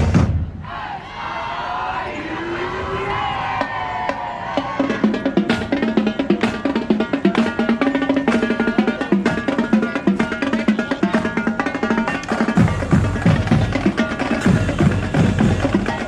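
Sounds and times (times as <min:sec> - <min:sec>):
drums striking a quick beat: 0:00.0 - 0:00.6, 0:04.6 - 0:16.0
marching band playing: 0:00.0 - 0:00.8, 0:02.6 - 0:16.0.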